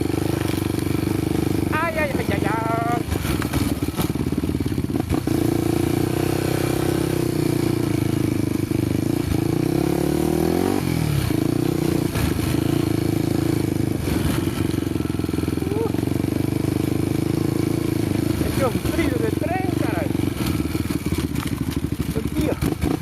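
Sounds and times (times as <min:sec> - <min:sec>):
motorcycle engine revving: 0:00.0 - 0:23.0
knocks and clatters: 0:20.4 - 0:23.0.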